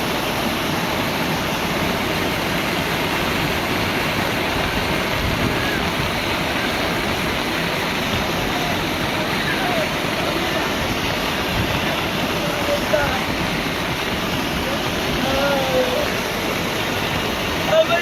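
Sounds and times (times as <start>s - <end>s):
heavy rain: 0.0s - 18.0s
rushing floodwater: 0.0s - 18.0s.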